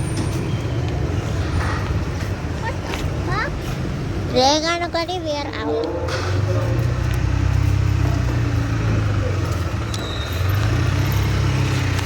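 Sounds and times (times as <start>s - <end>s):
engine low rumble: 0.0s - 12.0s
street traffic noise: 0.0s - 12.0s.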